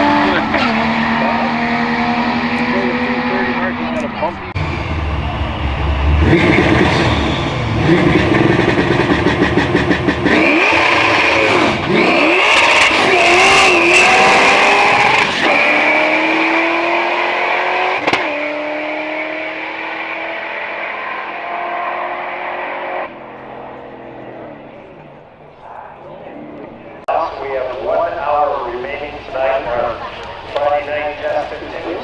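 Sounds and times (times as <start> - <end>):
race car engine at full throttle: 0.0 - 32.0.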